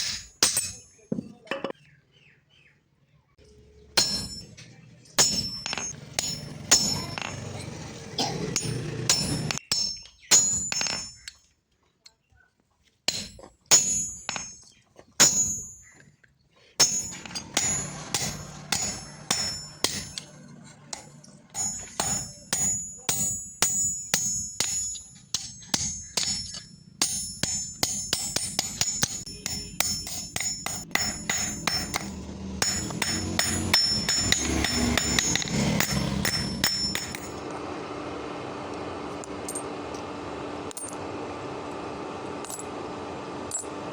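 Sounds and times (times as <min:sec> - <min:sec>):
hammer striking steel on anvil: 0:00.0 - 0:01.7, 0:04.0 - 0:11.3, 0:13.1 - 0:15.9, 0:16.8 - 0:37.7.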